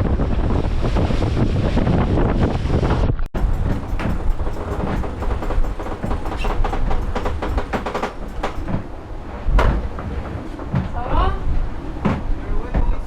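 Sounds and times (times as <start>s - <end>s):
low rumble of yacht: 0.0s - 13.0s
loud knock: 3.4s - 10.1s
rattling and clicking: 3.4s - 10.2s.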